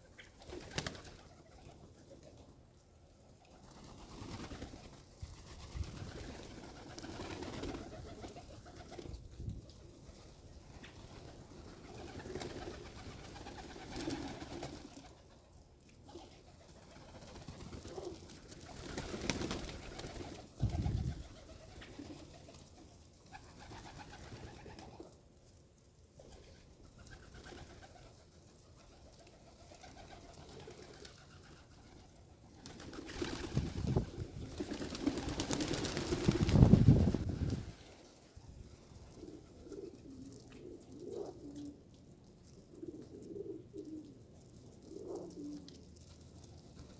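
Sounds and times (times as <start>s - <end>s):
pigeons cooing: 16.1s - 22.4s, 38.8s - 46.0s.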